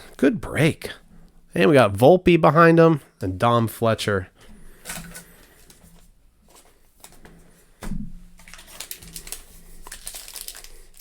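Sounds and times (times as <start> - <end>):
trading cards flipped by hand: 4.8 - 10.7.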